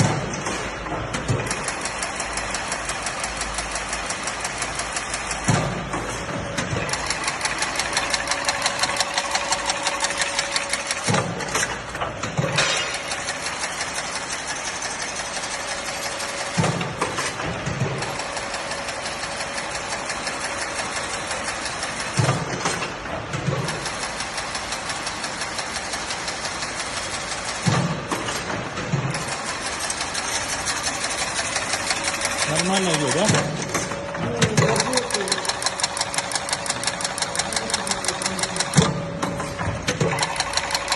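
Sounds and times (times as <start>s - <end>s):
heavy machine clunks: 0.0s - 1.8s, 5.4s - 13.4s
machine rapid mechanical clatter: 0.0s - 40.9s.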